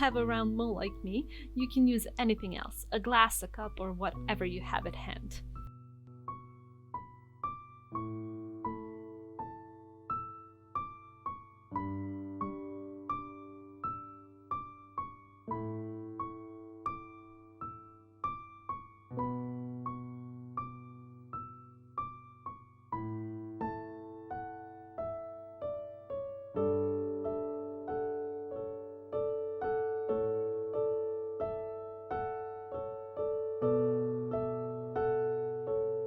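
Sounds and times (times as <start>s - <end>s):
gentle piano-like keyboard music: 0.0s - 36.0s.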